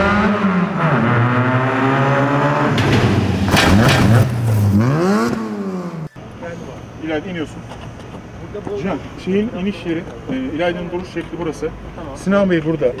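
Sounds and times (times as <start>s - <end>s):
rally car engine revving: 0.0s - 6.2s.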